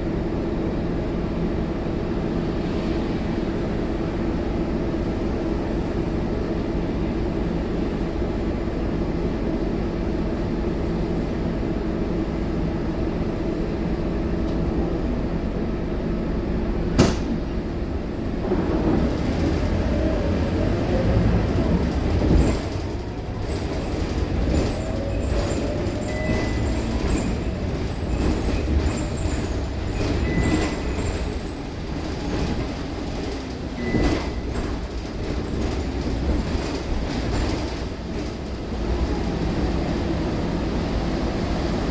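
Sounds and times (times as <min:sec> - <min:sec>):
bus diesel engine running: 0:03.2 - 0:41.9.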